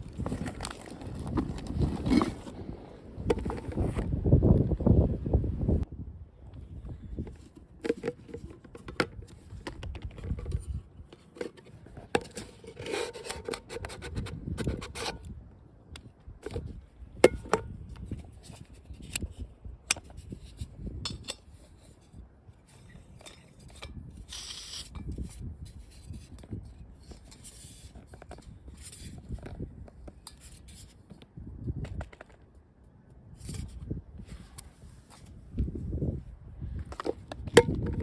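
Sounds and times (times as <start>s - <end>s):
low wind rumble on microphone: 0.0s - 11.2s, 13.6s - 32.4s, 33.2s - 38.0s
cooking gear clicks and scrapes: 0.1s - 2.5s, 7.2s - 15.3s.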